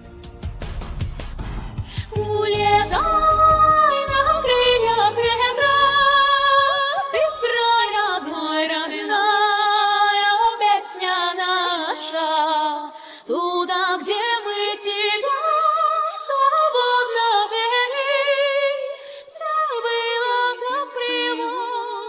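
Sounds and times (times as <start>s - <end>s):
low accompaniment: 0.0s - 6.2s
women singing in harmony: 2.1s - 22.0s.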